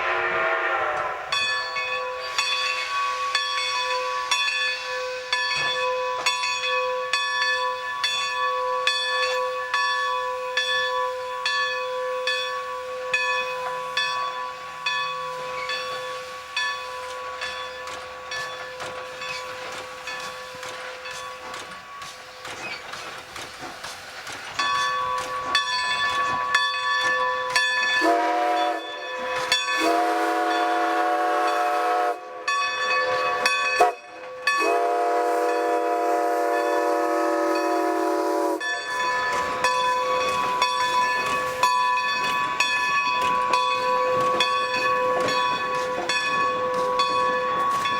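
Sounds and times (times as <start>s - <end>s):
locomotive bell ringing: 0.0s - 22.4s, 24.5s - 47.9s
steam chime whistle: 0.0s - 22.4s, 24.6s - 47.9s.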